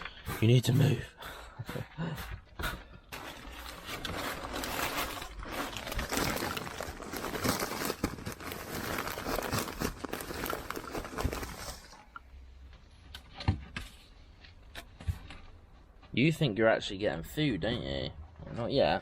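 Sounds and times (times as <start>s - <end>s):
dry hay rustling: 3.2s - 12.0s.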